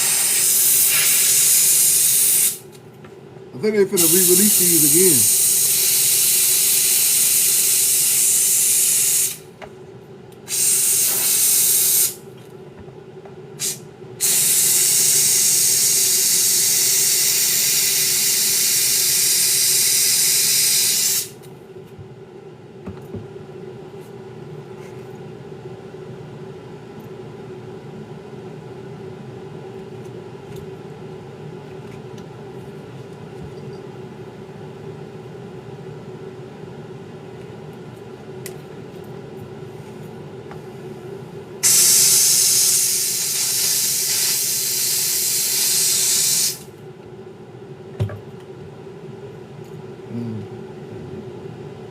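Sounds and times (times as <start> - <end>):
pressurised spray hissing: 0.0 - 2.6, 4.0 - 9.4, 10.5 - 12.2, 13.6 - 21.4, 41.6 - 46.7
steady low hum: 0.0 - 8.6, 9.3 - 17.5, 21.2 - 44.3, 46.6 - 51.9.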